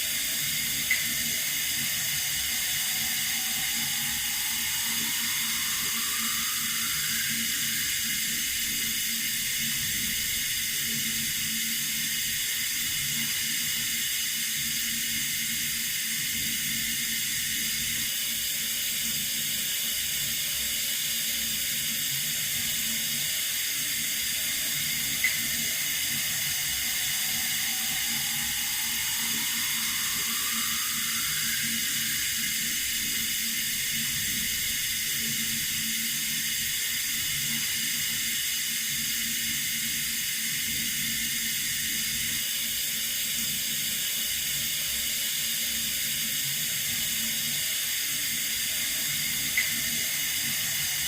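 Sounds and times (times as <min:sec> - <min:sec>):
water running from a tap: 0:00.0 - 0:51.0.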